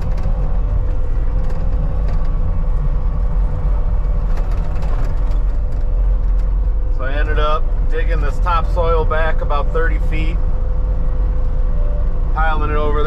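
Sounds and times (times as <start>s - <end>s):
faint light rattles: 0.0s - 7.0s
loader diesel engine droning: 0.0s - 13.0s.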